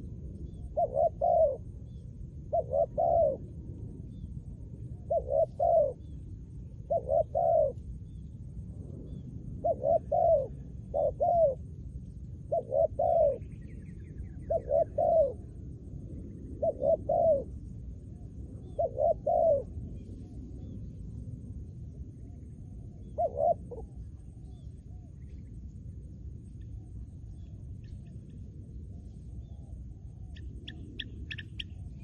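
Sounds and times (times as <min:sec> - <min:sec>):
dove cooing: 0:00.0 - 0:01.7, 0:02.5 - 0:03.5, 0:05.0 - 0:06.2, 0:06.8 - 0:07.8, 0:09.6 - 0:11.6, 0:12.5 - 0:13.6, 0:14.3 - 0:15.6, 0:16.6 - 0:17.5, 0:18.6 - 0:19.8, 0:23.0 - 0:24.3.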